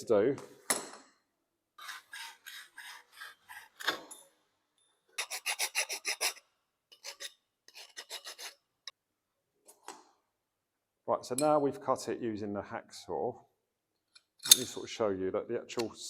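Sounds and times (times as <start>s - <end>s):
hacksaw cutting copper pipe: 1.8s - 4.2s, 5.2s - 8.6s.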